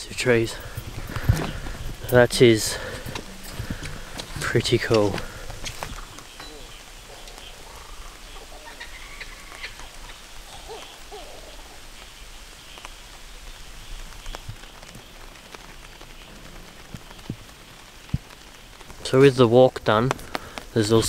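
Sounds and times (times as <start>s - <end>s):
light rain falling: 0.0s - 21.0s
short bird calls: 2.4s - 13.1s.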